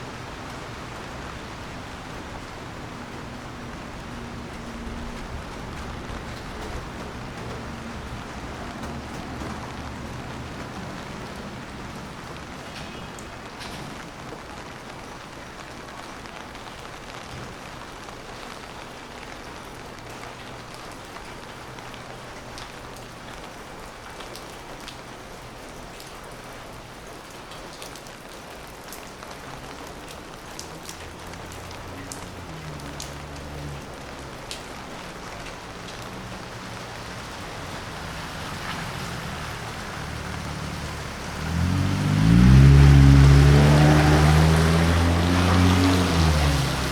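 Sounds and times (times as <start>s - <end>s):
low vehicle engine: 0.0s - 12.5s, 30.8s - 46.9s
rain falling on wet street: 0.0s - 46.9s.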